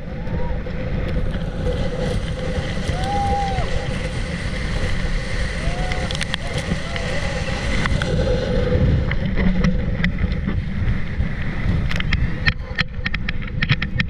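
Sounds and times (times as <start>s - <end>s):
motorboat engine hum: 0.0s - 14.0s
water rushing under boat: 0.0s - 14.0s
wind on microphone: 0.0s - 14.0s.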